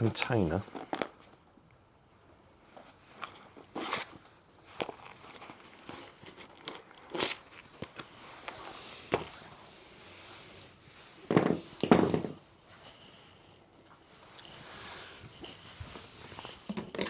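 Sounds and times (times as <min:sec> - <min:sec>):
knocks of objects being handled: 0:11.2 - 0:12.5, 0:16.6 - 0:17.0.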